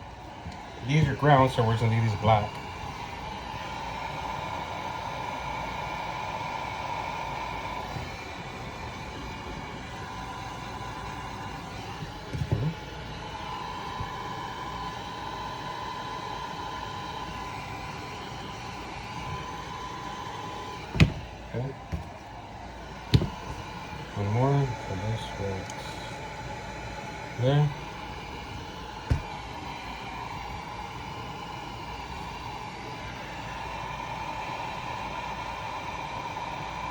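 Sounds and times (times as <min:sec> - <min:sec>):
heat gun running: 0:00.0 - 0:36.9
light knocks: 0:20.9 - 0:21.2, 0:23.1 - 0:23.5, 0:29.1 - 0:29.3.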